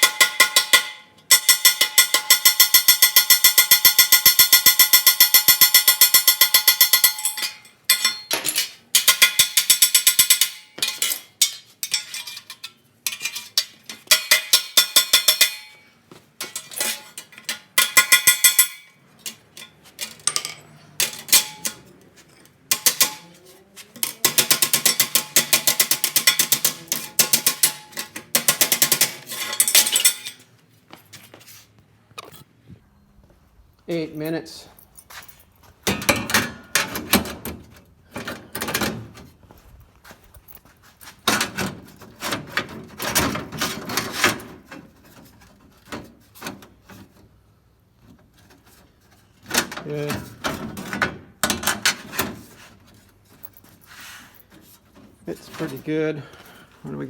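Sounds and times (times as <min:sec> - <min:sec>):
hammer striking sheet steel: 0:00.0 - 0:08.4, 0:09.0 - 0:12.4, 0:13.2 - 0:15.9, 0:17.5 - 0:19.0, 0:22.7 - 0:23.4, 0:24.0 - 0:30.3.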